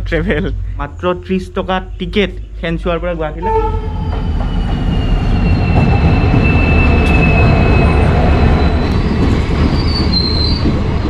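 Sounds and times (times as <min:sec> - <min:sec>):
train rumbling past: 0:00.0 - 0:11.0
high wheel squeal: 0:03.4 - 0:10.7.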